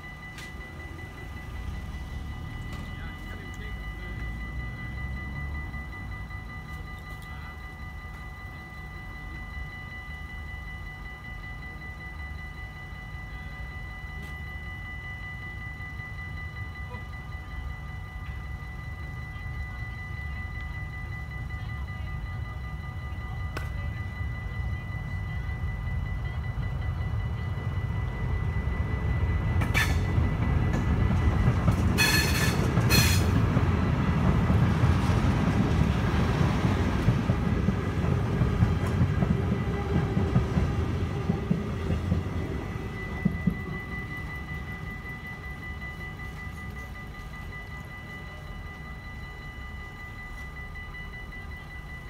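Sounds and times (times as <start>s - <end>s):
freight train rumble: 0.0s - 52.0s
level crossing bells ringing: 0.0s - 52.0s
shrill horn blasts: 29.3s - 33.6s.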